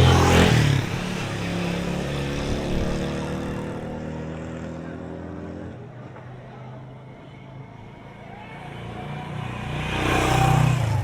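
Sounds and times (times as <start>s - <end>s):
vehicle engine passing by: 0.0s - 5.9s, 8.5s - 11.0s.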